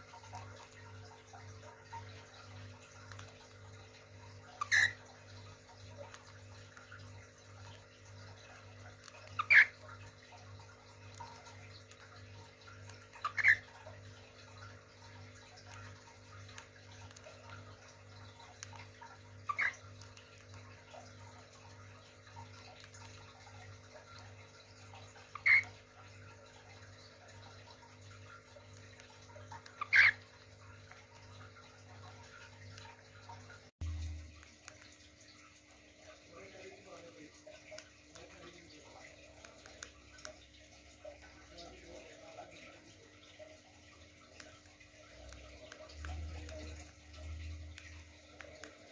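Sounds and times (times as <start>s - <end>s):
cage bird calling: 4.5s - 5.0s, 9.2s - 9.8s, 13.1s - 13.8s, 19.5s - 19.8s, 25.4s - 25.8s, 29.7s - 30.2s
faint bird chirps: 4.6s - 5.0s.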